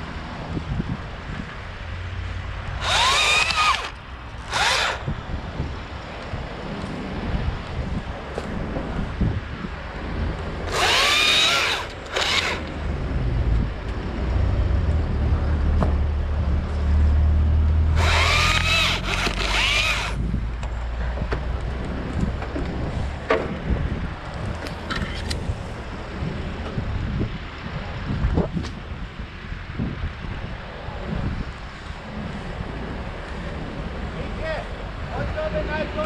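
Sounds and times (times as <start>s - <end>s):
wind noise: 0.0s - 36.0s
chainsaw revving: 2.8s - 5.0s, 10.7s - 12.7s, 17.9s - 20.2s.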